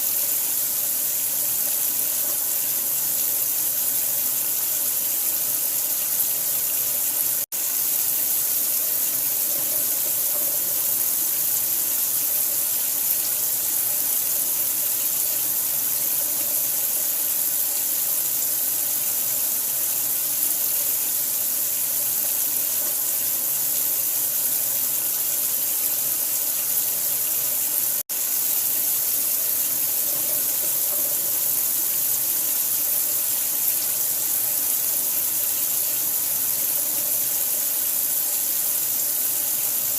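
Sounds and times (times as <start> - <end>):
running water rushing: 21.2 - 39.9.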